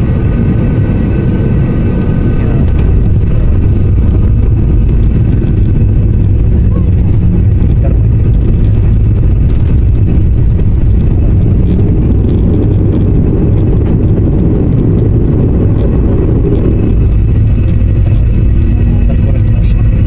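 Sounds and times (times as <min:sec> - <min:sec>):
airliner cabin low rumble: 0:00.0 - 0:20.0.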